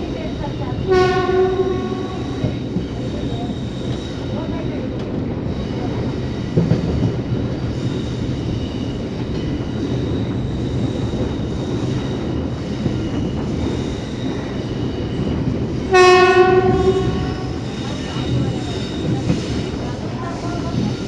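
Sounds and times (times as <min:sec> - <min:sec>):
train wheels rumbling on track: 0:00.0 - 0:21.0
train horn blast: 0:00.9 - 0:02.6, 0:15.9 - 0:17.7.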